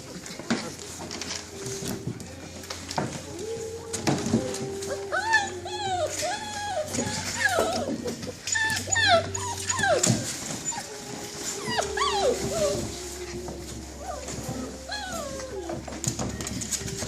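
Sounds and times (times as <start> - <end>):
puppies whimpering and yipping: 3.4 - 17.0.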